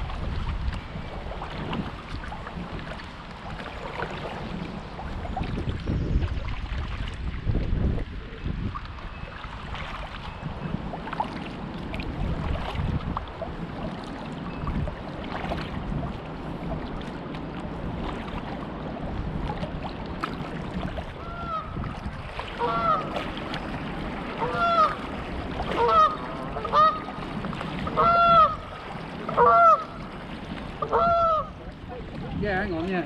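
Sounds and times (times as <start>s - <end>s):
water: 0.0s - 33.0s
wind: 0.0s - 33.0s
geese honking: 22.6s - 23.1s, 24.4s - 25.0s, 25.7s - 27.1s, 27.9s - 28.6s, 29.3s - 30.0s, 30.8s - 31.6s.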